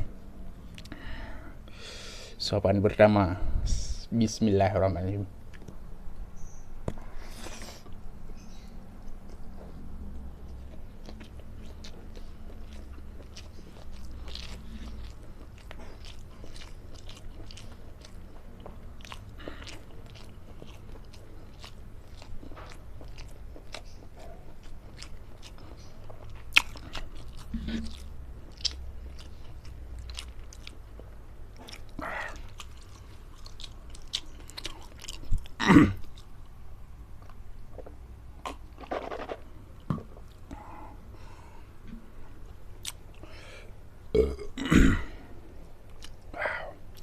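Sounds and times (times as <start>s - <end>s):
person chewing food: 6.4s - 41.0s, 42.4s - 43.4s, 45.8s - 47.0s.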